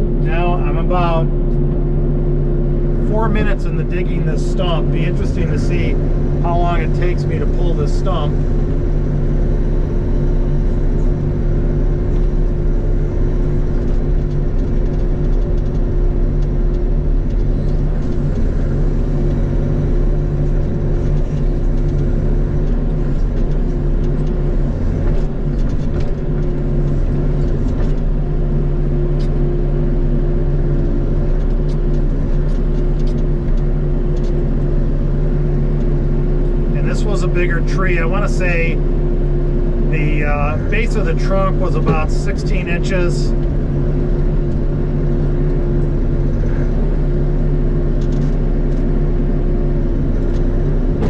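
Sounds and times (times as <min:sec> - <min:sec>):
excavator diesel engine running: 0:00.0 - 0:51.0.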